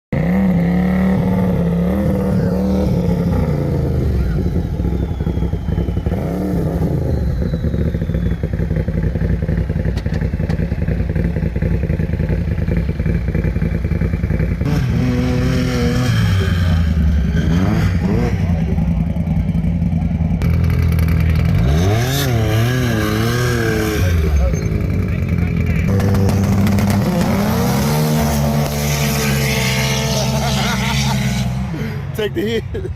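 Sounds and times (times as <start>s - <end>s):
off-road vehicle engines revving: 0.1s - 32.9s.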